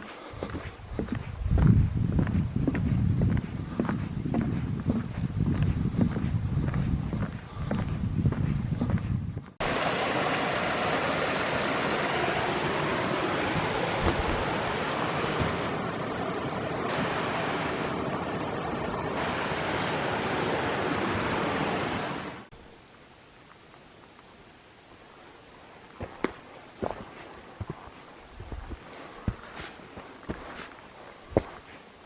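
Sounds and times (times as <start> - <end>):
rushing water: 9.6 - 22.5.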